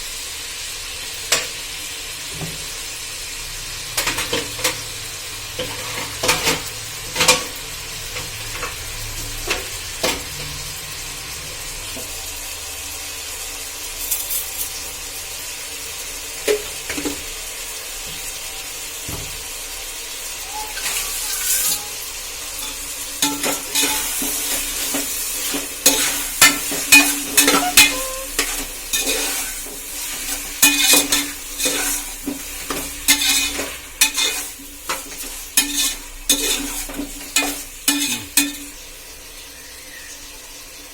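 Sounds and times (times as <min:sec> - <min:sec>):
food sizzling in a pan: 0:00.0 - 0:40.9
spoon scraping and clinking on pan: 0:20.5 - 0:21.9, 0:22.6 - 0:38.8.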